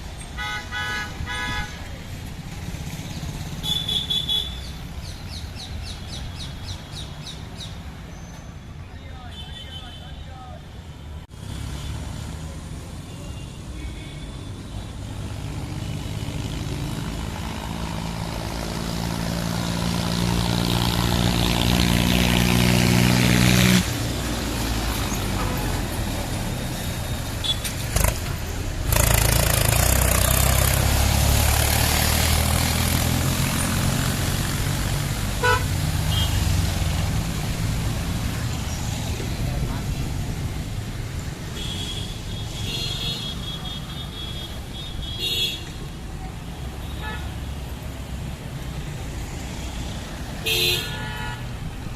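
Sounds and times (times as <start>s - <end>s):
horn toot: 35.4s - 36.5s.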